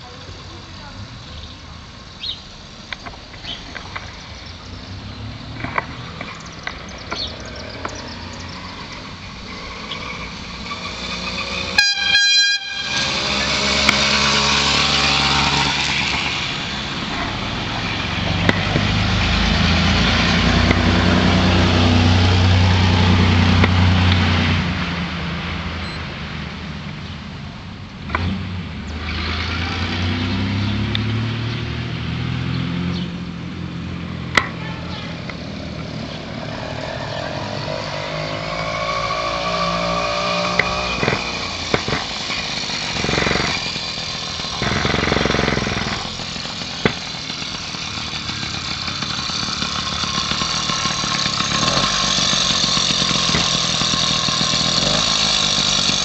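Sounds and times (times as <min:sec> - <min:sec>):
two-stroke bicycle engine passing: 0:00.0 - 0:25.0, 0:28.1 - 0:56.0
horn blast: 0:11.7 - 0:13.9.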